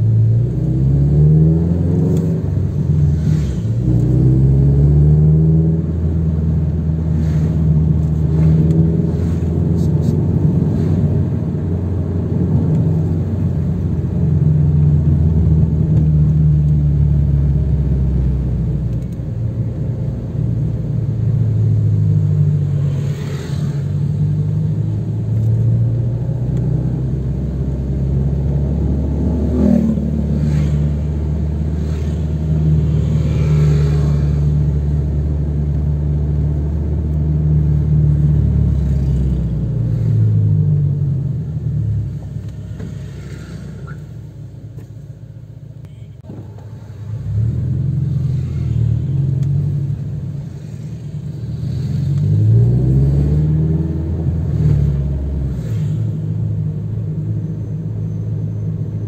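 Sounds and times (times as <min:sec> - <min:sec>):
car engine drone from cabin: 0:00.0 - 0:59.0
passing traffic: 0:00.0 - 0:59.0.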